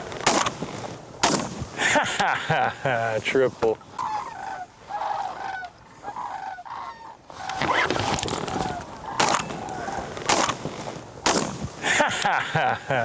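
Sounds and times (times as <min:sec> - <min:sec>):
shotgun shots: 0:00.2 - 0:01.7, 0:09.1 - 0:11.8
ducks quacking: 0:01.8 - 0:10.4.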